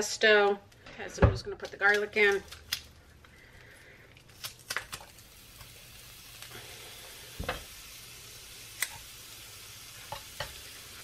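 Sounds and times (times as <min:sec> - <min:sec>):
garlic sizzling in a pan: 0:04.4 - 0:11.0.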